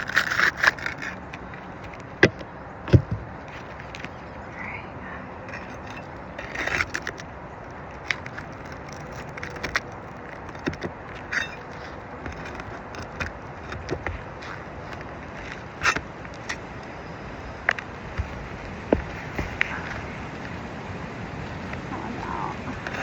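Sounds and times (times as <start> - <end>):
shingles scraping and crackling: 0.0 - 4.4, 5.5 - 23.0
steady background hiss: 14.7 - 23.0.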